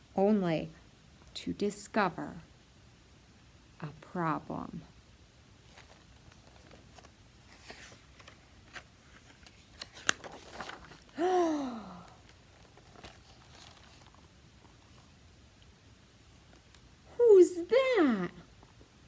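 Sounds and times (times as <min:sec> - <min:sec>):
book pages turning: 0:05.6 - 0:11.2, 0:12.0 - 0:16.9
woman saying ohh: 0:17.1 - 0:18.4.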